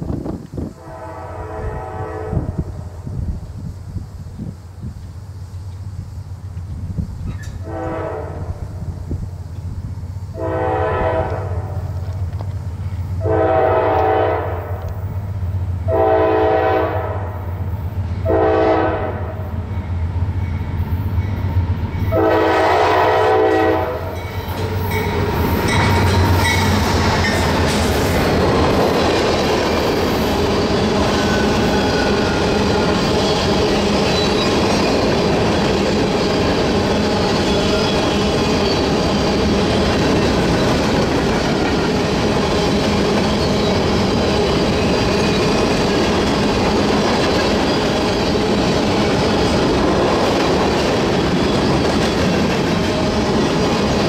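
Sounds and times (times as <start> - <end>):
freight train rumbling past: 0.0 - 54.0
locomotive horn blast: 0.8 - 2.8, 7.6 - 8.7, 10.3 - 11.8, 13.2 - 14.9, 15.9 - 17.5, 18.2 - 19.5, 22.1 - 24.2.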